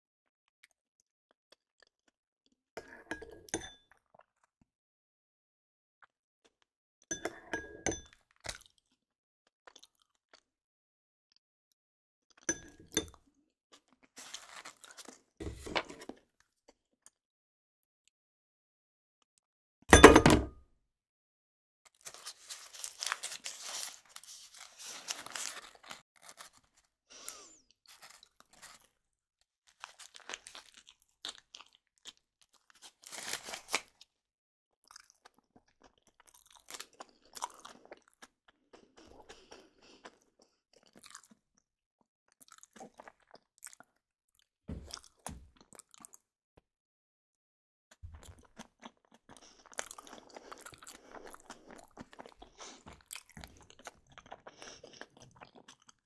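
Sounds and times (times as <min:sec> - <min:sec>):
crackly crunching: 0:13.7 - 0:16.2, 0:21.9 - 0:29.0, 0:29.7 - 0:34.0.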